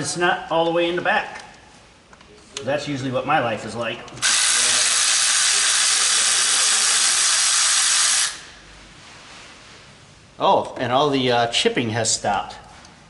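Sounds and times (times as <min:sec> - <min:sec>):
pressurised gas hissing: 0:04.2 - 0:08.6.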